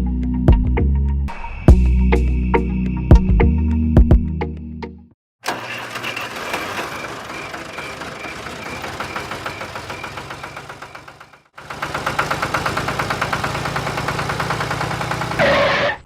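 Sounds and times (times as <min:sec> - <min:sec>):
engine running: 0:05.4 - 0:16.0.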